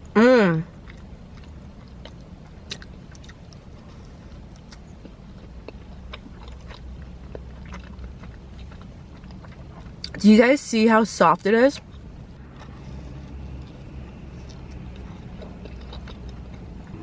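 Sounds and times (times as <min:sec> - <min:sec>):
person chewing: 0:00.7 - 0:10.2, 0:11.8 - 0:17.0
low hum: 0:11.3 - 0:17.0.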